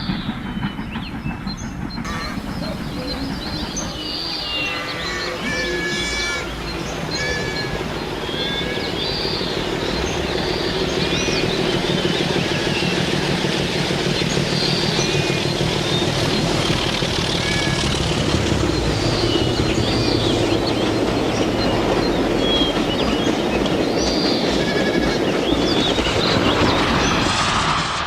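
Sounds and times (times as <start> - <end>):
birds chirping: 0.0 - 27.4
train rumble: 0.0 - 28.0.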